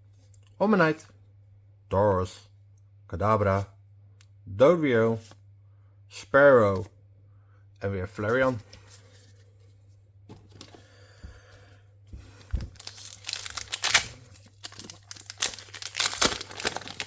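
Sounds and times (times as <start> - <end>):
foil wrapper crinkling and tearing: 12.7 - 17.0.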